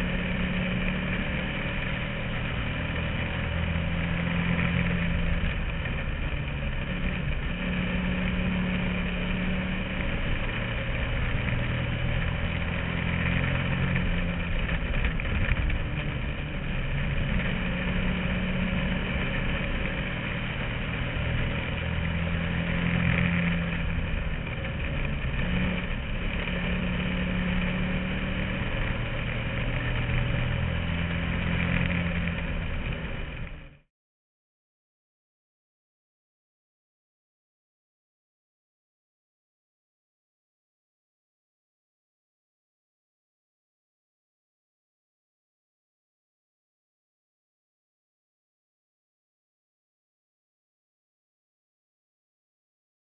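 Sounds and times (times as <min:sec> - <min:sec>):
race car engine accelerating: 0:00.0 - 0:33.8.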